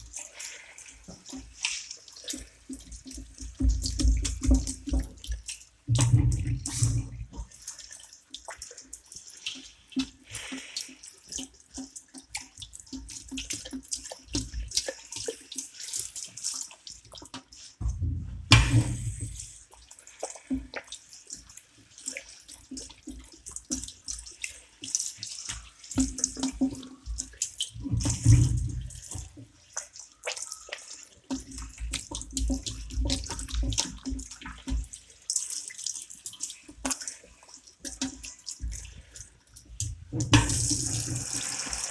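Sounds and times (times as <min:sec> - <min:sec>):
tap water splashing into basin: 0:00.0 - 0:41.9
dull thumps: 0:17.8 - 0:19.5.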